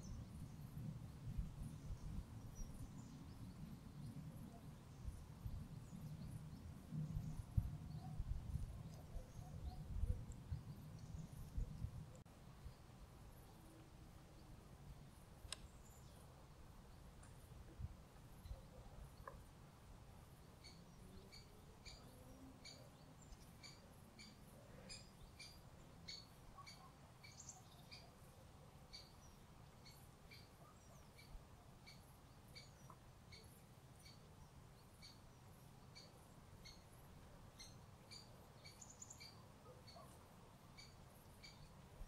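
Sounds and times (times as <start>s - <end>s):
small bird calling: 20.6s - 28.2s, 37.6s - 40.2s.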